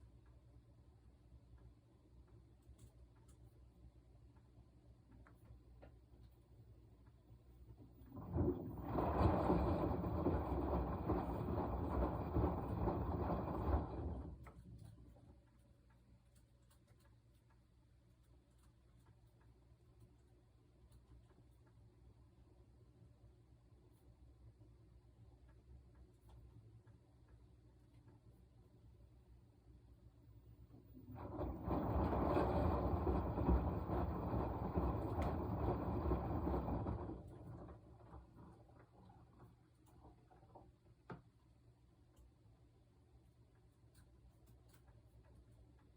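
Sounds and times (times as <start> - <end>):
washing machine drum churning: 7.7 - 14.9, 30.7 - 40.6.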